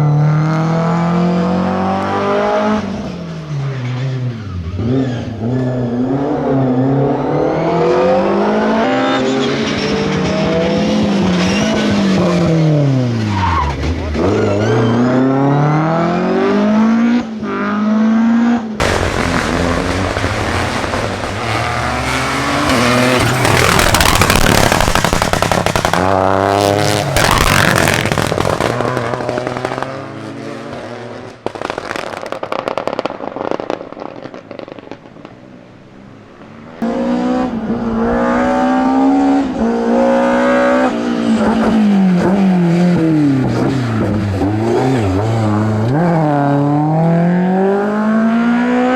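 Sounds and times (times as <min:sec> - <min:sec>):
rally car engine revving: 0:00.0 - 0:31.4, 0:36.8 - 0:48.9
rushing noise: 0:18.8 - 0:29.1.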